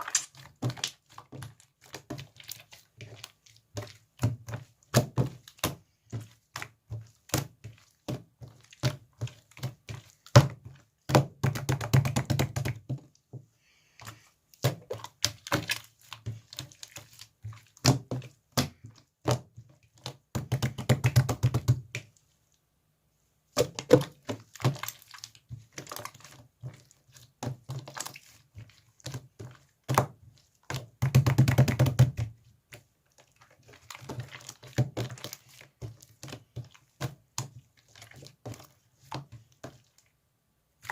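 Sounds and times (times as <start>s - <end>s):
slime squished by hand: 0.0s - 12.9s, 14.0s - 22.1s.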